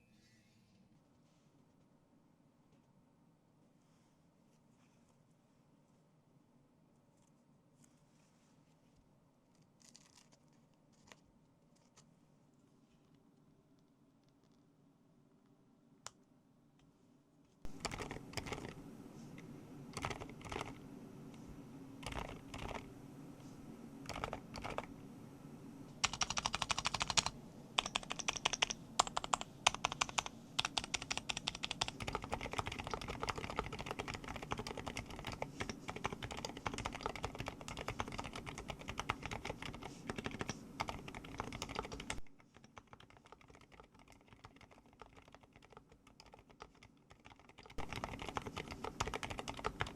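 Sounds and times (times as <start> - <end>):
typing on mechanical keyboard: 17.7 - 18.8, 20.0 - 20.8, 22.0 - 22.9, 24.1 - 24.9, 26.0 - 49.9.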